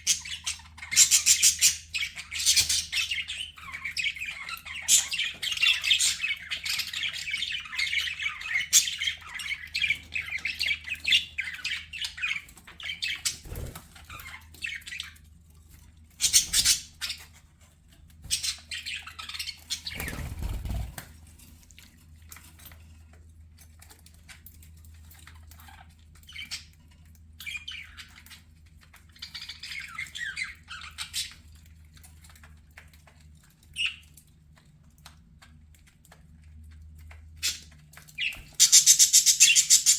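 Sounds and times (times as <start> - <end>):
wing flaps: 13.4 - 14.0, 20.0 - 21.0
budgerigars chattering: 38.2 - 39.9.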